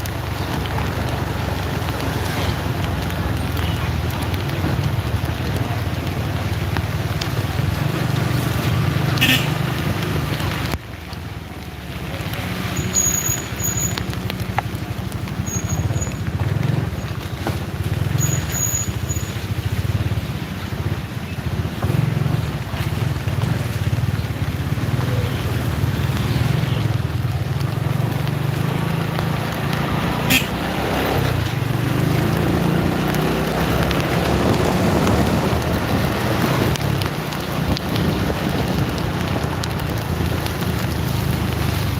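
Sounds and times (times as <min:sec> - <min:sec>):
vehicle road noise: 0:00.0 - 0:41.9
wind rumble on microphone: 0:33.2 - 0:41.9.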